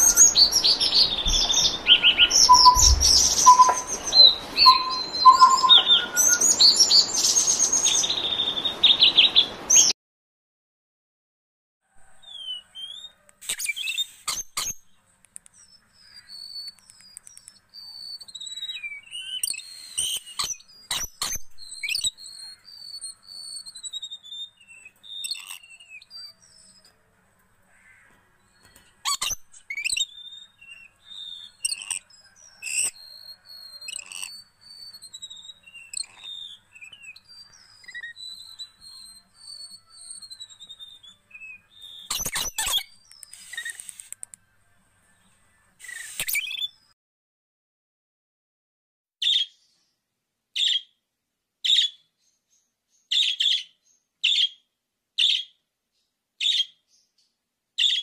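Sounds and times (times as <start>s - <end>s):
bird whistling high notes: 0.0s - 7.4s
loud bird song: 0.0s - 9.9s, 11.9s - 47.0s, 49.2s - 51.0s, 51.6s - 58.0s
sharp clicks: 42.1s - 44.4s.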